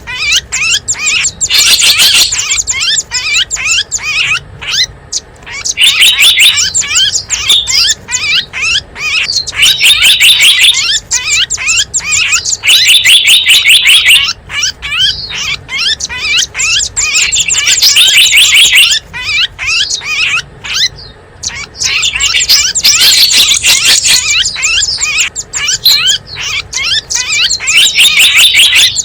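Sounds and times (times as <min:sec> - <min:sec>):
small birds chirping rapidly: 0:00.0 - 0:29.0.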